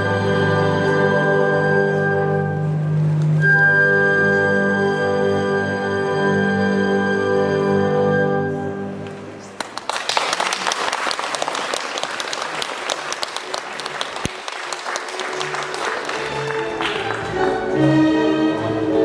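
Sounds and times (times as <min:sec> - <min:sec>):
audience applauding: 0:09.6 - 0:17.9
recorded music: 0:15.1 - 0:19.0.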